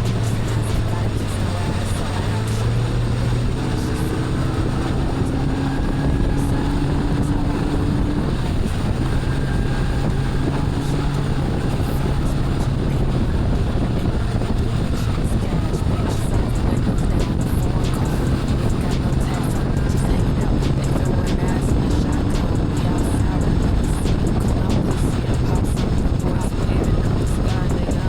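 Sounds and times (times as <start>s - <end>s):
outboard motor running: 0.0s - 28.0s
wind buffeting microphone: 0.0s - 28.0s.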